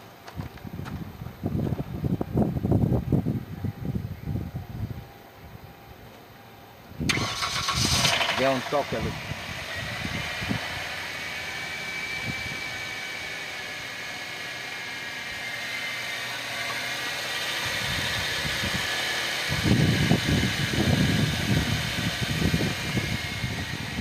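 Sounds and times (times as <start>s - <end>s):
car engine running: 7.1s - 24.0s.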